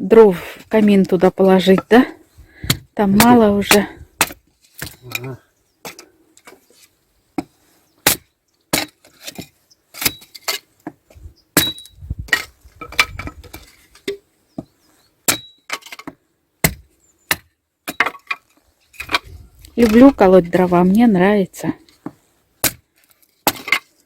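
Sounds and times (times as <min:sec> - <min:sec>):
axe chopping wood: 0:02.6 - 0:05.1, 0:07.4 - 0:10.2, 0:11.6 - 0:13.6, 0:15.3 - 0:18.2, 0:22.0 - 0:23.8.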